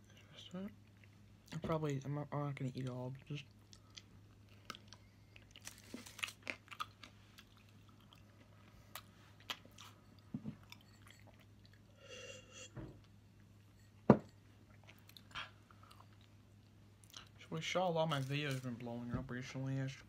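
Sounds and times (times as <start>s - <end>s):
low steady hum: 0.0s - 20.0s
person chewing: 3.5s - 12.0s, 14.6s - 17.4s.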